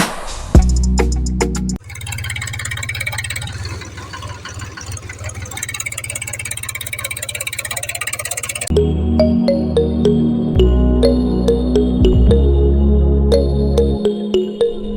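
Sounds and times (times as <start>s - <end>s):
small electric motor buzzing: 2.0s - 8.7s
background music: 8.7s - 14.9s.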